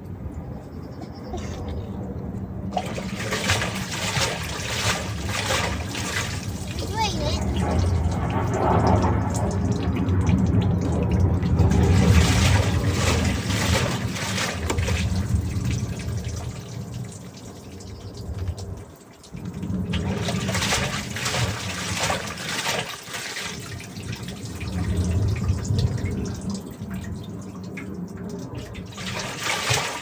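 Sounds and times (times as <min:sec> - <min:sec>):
low machine hum: 0:00.0 - 0:18.7
water sloshing in washing machine: 0:01.3 - 0:30.0.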